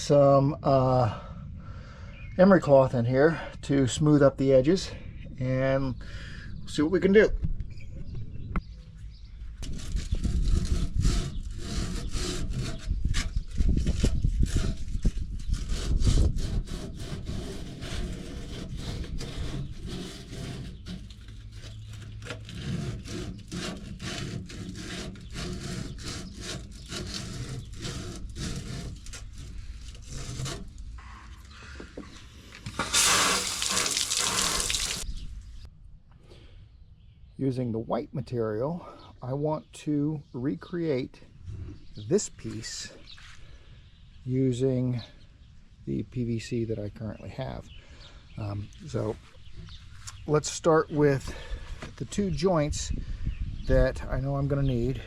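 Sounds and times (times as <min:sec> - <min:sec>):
brief loud hiss: 0:32.8 - 0:35.0.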